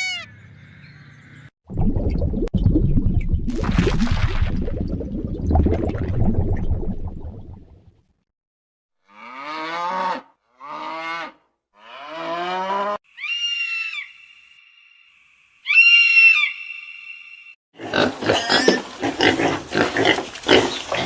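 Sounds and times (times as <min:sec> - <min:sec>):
short high-pitched animal calls: 0:13.1 - 0:14.6.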